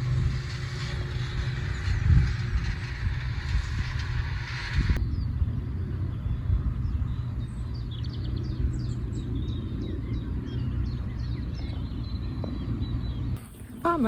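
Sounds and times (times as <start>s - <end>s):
steady low rumble: 0.0s - 14.0s
songbird chirps and trills: 6.2s - 14.0s.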